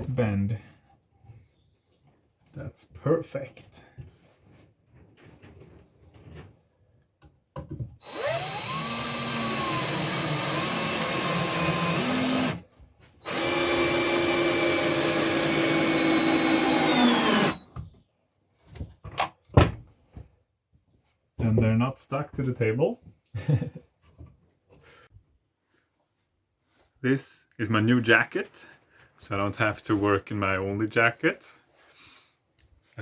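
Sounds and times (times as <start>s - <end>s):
electric saw cutting wood: 8.0s - 12.6s, 13.2s - 17.6s.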